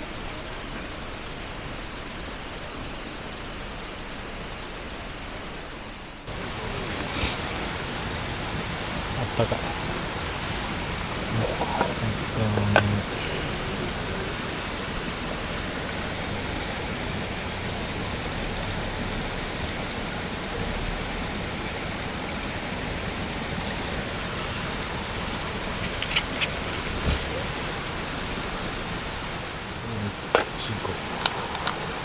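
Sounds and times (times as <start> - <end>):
steady rain: 0.0 - 32.0
sharp clicks: 25.7 - 27.9.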